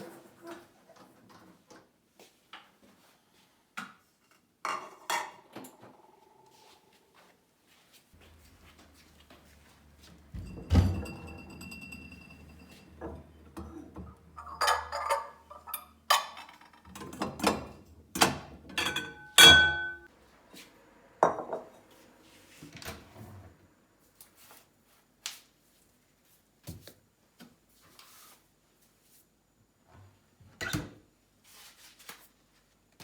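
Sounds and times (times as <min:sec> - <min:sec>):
dishes and glassware clinking: 0:10.3 - 0:20.1.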